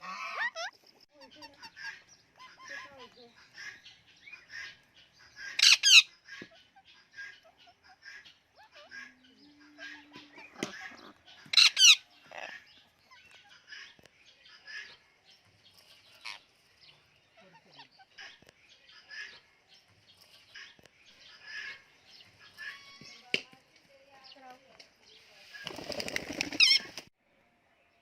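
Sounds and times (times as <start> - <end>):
parakeet chirping: 5.6 - 6.1, 11.5 - 12.5
parakeet screeching squawk: 5.6 - 6.1, 11.5 - 12.6.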